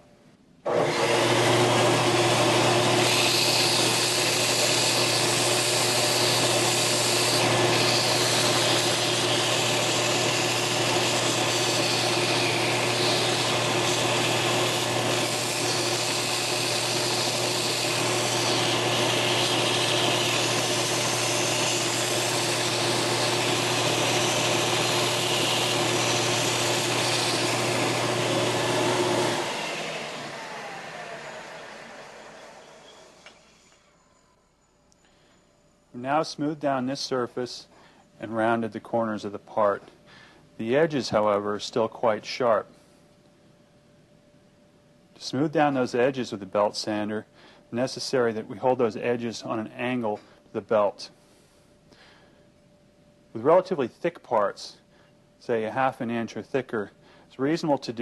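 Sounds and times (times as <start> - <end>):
belt sander grinding: 0.7 - 33.8.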